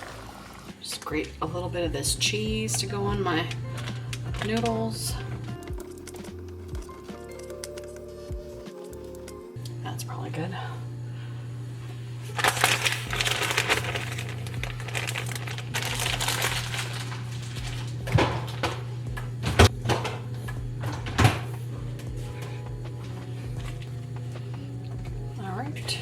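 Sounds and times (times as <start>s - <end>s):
steady low hum: 0.0s - 26.0s
kitchen knocks and clatters: 17.6s - 21.6s.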